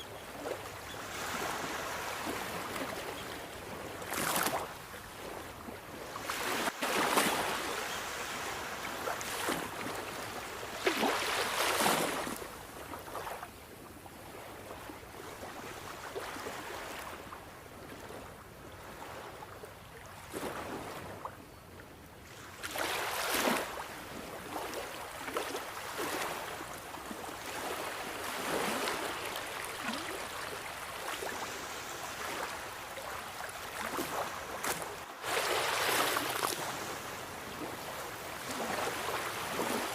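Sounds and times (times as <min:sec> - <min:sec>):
sea waves breaking on shore: 0:00.0 - 0:13.6, 0:14.3 - 0:21.3, 0:22.2 - 0:39.9.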